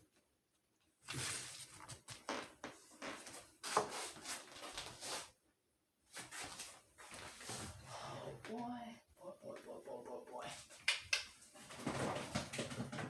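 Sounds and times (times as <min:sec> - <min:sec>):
kitchen rustles and knocks: 0:10.8 - 0:13.0.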